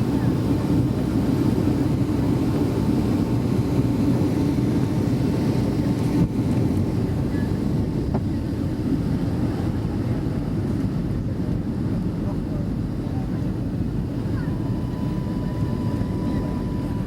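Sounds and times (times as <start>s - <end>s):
low roar of aircraft cabin: 0.0s - 17.0s
faint steady tone: 14.4s - 17.0s.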